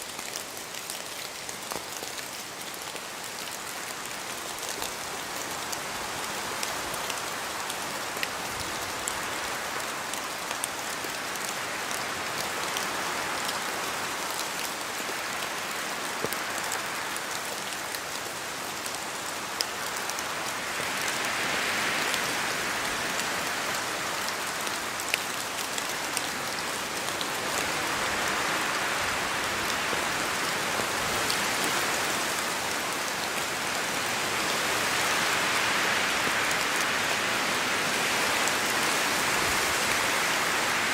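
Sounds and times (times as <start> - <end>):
drops falling from trees: 0.0 - 5.1
steady rain in forest: 0.0 - 40.9
wind gusts through trees: 0.0 - 40.9.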